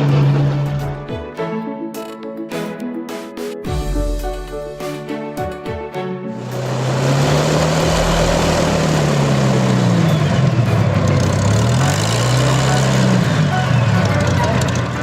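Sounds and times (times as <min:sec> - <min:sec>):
propeller aircraft engine drone: 0:05.9 - 0:15.0.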